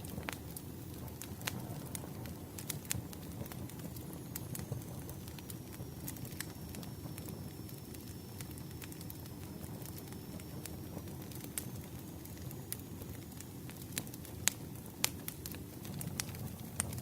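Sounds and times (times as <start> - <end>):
burning wood crackling and popping: 0.0 - 17.0
low rumble of flame: 0.0 - 17.0.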